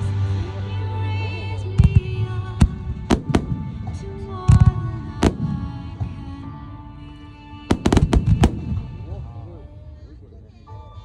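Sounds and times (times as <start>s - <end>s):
music with sustained tones: 0.0s - 11.0s
firework shells bursting: 3.1s - 4.0s, 5.2s - 5.8s, 7.7s - 9.0s.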